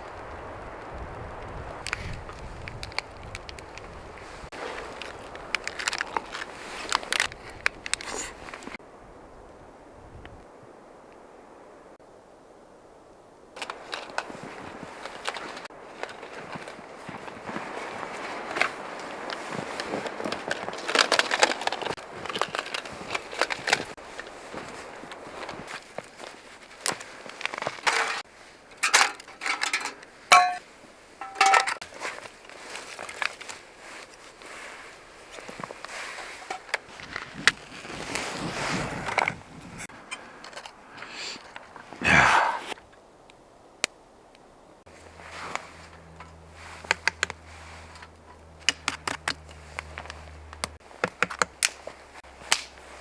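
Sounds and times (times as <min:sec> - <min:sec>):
metal cookware knocks and scrapes: 0:28.8 - 0:30.6, 0:31.2 - 0:31.8
ringing metal clinks: 0:28.9 - 0:30.6.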